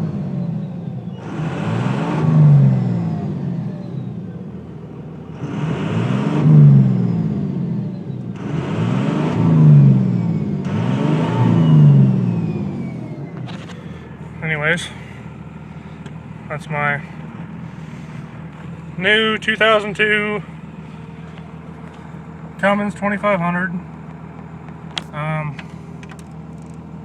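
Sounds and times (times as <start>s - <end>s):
diesel engine revving: 0.0s - 27.0s
turbo whistle: 11.0s - 13.3s.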